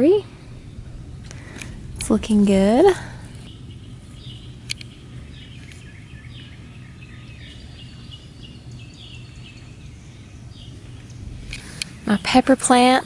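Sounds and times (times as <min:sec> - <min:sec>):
low background hum: 0:00.0 - 0:13.0
small birds chirping: 0:00.0 - 0:13.0
sharp click: 0:04.6 - 0:04.9.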